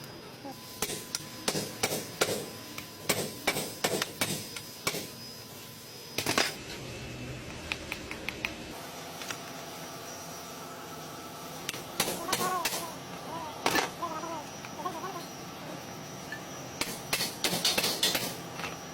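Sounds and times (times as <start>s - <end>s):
metal parts clicking and knocking: 16.8s - 18.8s.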